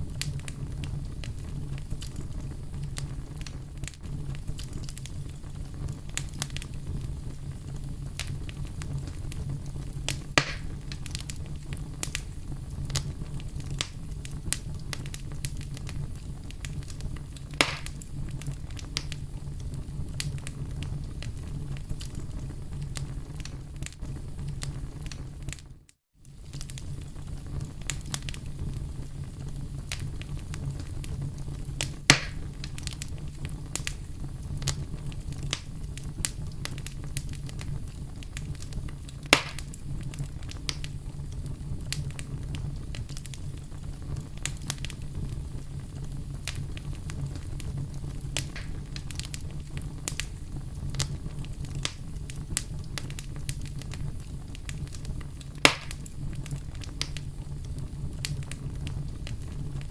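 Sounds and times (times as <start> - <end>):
wood fire crackling: 0.0 - 59.9
sharp pops: 10.1 - 10.8, 17.6 - 18.0, 32.1 - 32.4, 39.3 - 39.8, 48.4 - 48.8, 55.6 - 56.1.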